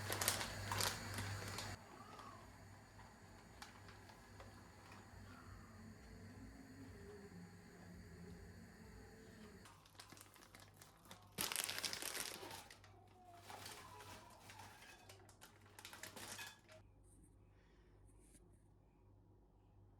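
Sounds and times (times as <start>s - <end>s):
wrapper crinkling and rustling: 0.0s - 6.1s, 9.4s - 16.8s.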